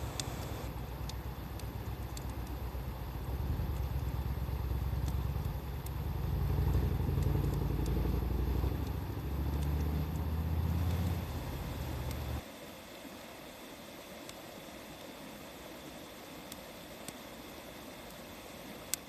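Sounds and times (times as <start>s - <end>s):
loud low engine rumble: 0.0s - 0.7s, 5.8s - 12.4s
wood fire crackling and popping: 0.0s - 12.4s.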